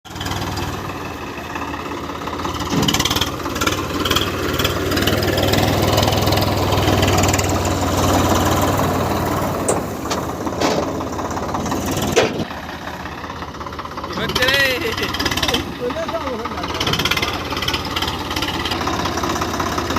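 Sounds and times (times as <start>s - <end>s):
tractor diesel engine running: 0.0s - 19.9s
knocks and clanks: 2.5s - 4.3s, 9.5s - 12.5s.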